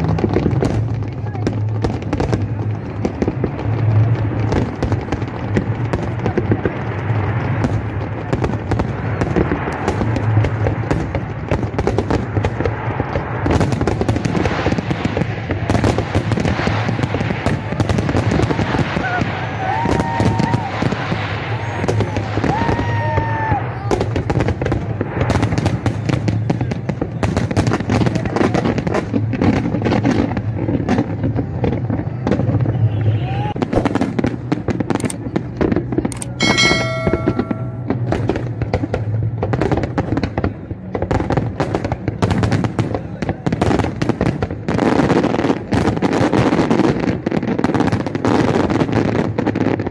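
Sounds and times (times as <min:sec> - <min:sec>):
fireworks crackling: 0:00.0 - 0:49.9
held tone with several pitches: 0:36.4 - 0:37.9.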